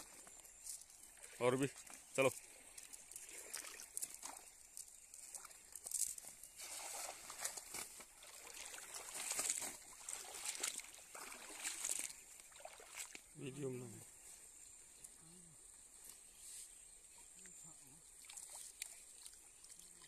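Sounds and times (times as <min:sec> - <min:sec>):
water sloshing and trickling: 0:00.0 - 0:15.2, 0:17.0 - 0:20.0
net splashing into water: 0:06.5 - 0:13.3, 0:18.2 - 0:19.8.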